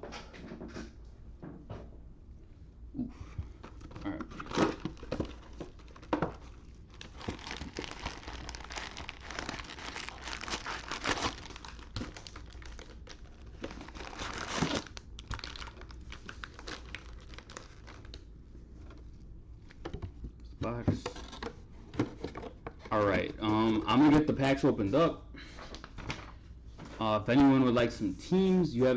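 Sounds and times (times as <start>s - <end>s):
plastic wrapping crinkling and tearing: 3.7s - 19.1s.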